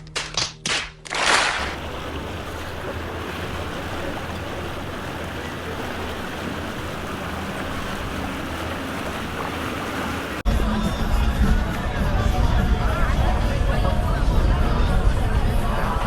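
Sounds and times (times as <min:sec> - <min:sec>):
water rushing: 0:01.2 - 0:16.0
boat motor running: 0:01.6 - 0:16.0
wind noise on microphone: 0:10.5 - 0:16.0.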